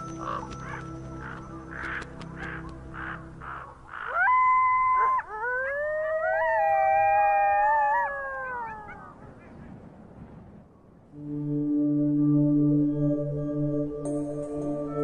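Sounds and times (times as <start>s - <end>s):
wild canids howling: 0.0s - 9.6s.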